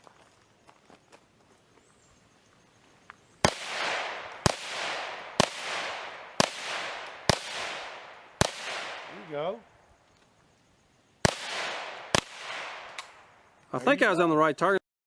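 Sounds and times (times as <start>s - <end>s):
pistol gunshots with echo: 3.4s - 9.6s, 11.2s - 13.3s.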